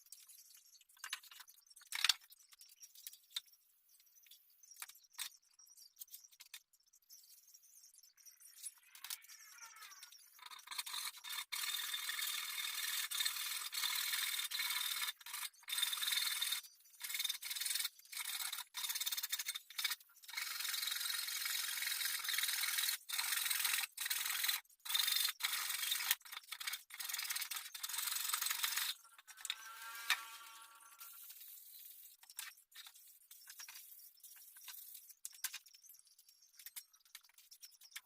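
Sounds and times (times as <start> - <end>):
rough scraping on a surface: 27.0 - 32.1.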